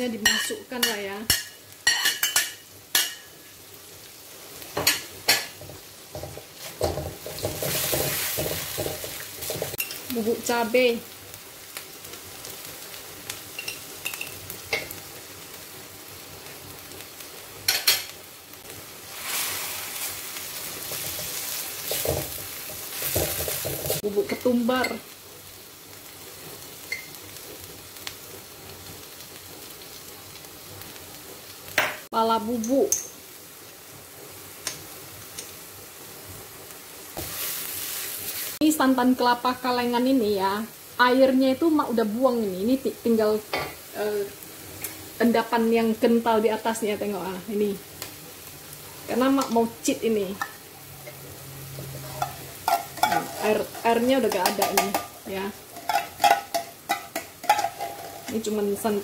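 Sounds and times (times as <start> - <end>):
paste sizzling in oil: 0.0 - 59.0
spatula scraping wok: 4.7 - 10.1, 19.0 - 25.0, 50.4 - 59.0.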